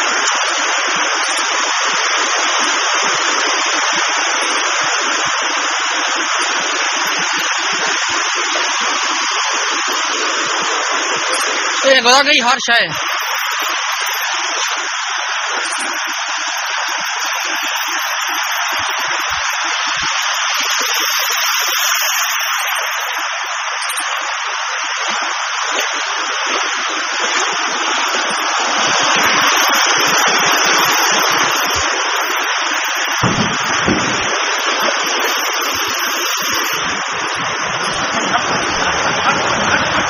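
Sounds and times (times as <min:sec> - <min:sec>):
rushing floodwater: 0:00.0 - 0:40.0
low thump: 0:33.2 - 0:34.3.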